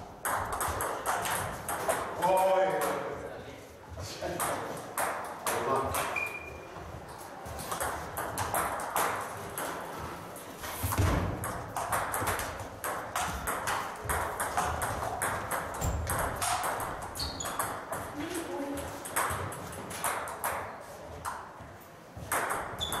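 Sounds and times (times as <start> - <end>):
ping pong ball clicking: 0.2 - 2.1, 11.4 - 18.2, 19.0 - 20.7.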